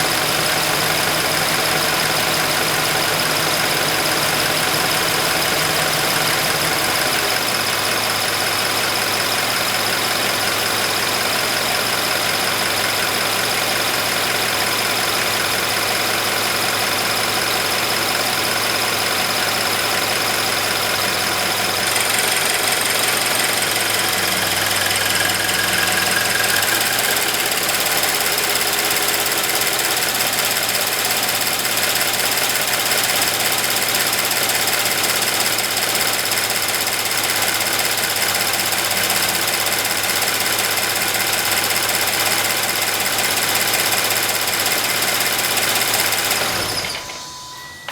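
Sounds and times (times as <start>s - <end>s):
car engine idling: 0.0s - 46.7s
fuel pump ticking: 20.9s - 46.4s.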